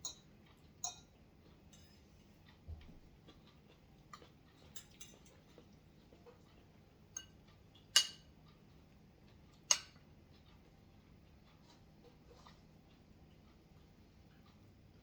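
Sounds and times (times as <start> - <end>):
utensils clinking on dishes: 0.0 - 1.1, 1.7 - 2.4, 4.2 - 5.7, 8.0 - 8.3.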